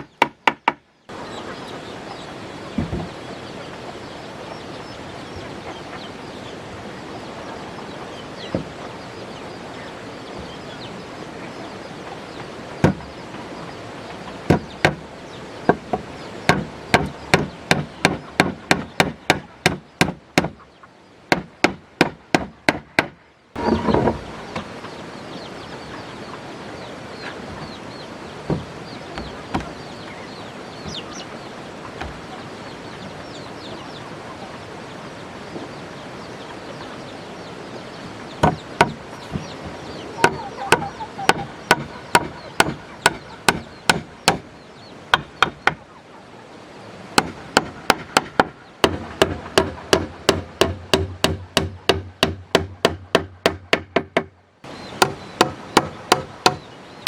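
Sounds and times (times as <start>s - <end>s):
sharp strikes on wood: 0.0s - 0.8s, 12.8s - 13.1s, 14.5s - 15.0s, 15.7s - 20.6s, 21.3s - 24.3s, 38.4s - 44.5s, 45.1s - 45.8s, 47.2s - 54.4s, 55.0s - 56.7s
faint bird calls: 0.0s - 21.7s, 22.3s - 57.0s.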